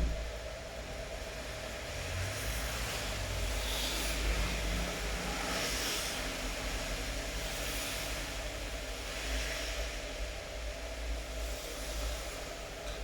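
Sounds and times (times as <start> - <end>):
low rumble: 0.0 - 0.4
rain hiss: 5.6 - 12.9.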